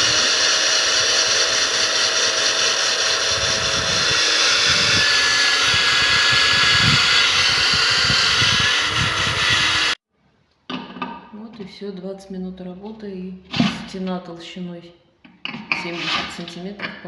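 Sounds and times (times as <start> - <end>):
core drill grinding through wall: 0.0 - 10.0.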